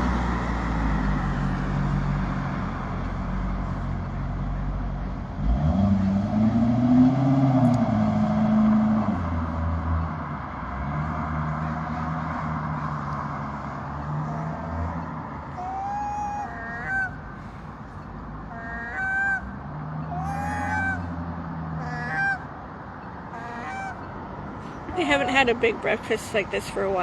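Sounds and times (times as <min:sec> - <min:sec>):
low engine hum: 0:00.0 - 0:27.0
gulls calling: 0:11.5 - 0:27.0.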